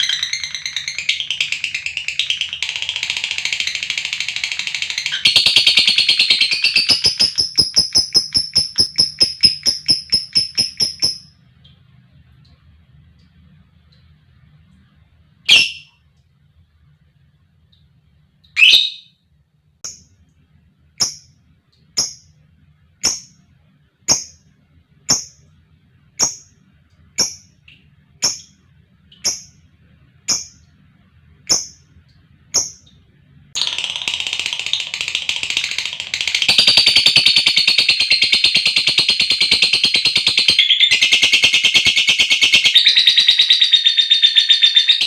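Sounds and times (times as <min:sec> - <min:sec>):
lovebird rapid trill: 0:02.6 - 0:11.3, 0:35.5 - 0:45.0
lovebird calling: 0:05.0 - 0:11.3, 0:15.5 - 0:15.9
lovebird chirps: 0:05.0 - 0:11.4, 0:15.5 - 0:16.0, 0:18.5 - 0:19.2, 0:21.0 - 0:21.4, 0:22.0 - 0:22.4, 0:23.0 - 0:23.4, 0:24.1 - 0:24.4, 0:25.1 - 0:25.4, 0:26.2 - 0:26.6, 0:27.2 - 0:29.6, 0:30.3 - 0:30.7, 0:31.5 - 0:31.9, 0:32.5 - 0:33.0.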